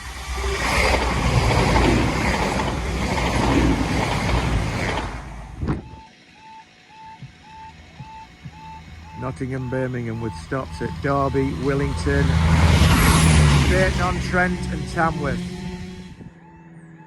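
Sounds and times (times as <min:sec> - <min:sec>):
train wheels rumbling on rail: 0:00.0 - 0:05.7, 0:07.2 - 0:16.2
two-pitch crossing warning beep: 0:05.7 - 0:17.0.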